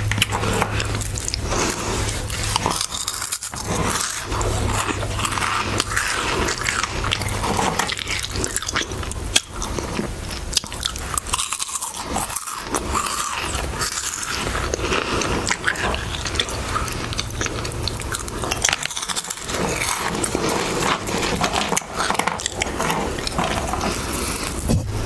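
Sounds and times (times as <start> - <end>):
crunching and chewing crisps: 0.0 - 25.0.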